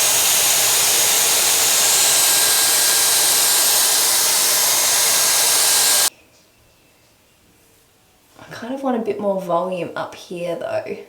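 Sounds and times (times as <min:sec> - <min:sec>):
hair styler blowing air: 0:00.0 - 0:06.1.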